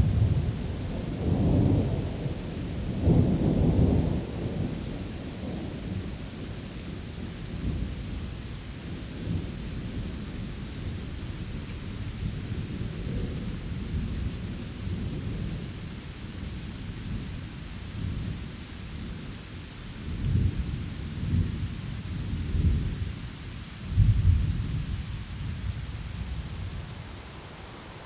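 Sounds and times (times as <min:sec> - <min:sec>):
rolling thunder: 0:00.0 - 0:06.4, 0:23.9 - 0:28.0
rain hissing: 0:00.0 - 0:28.0.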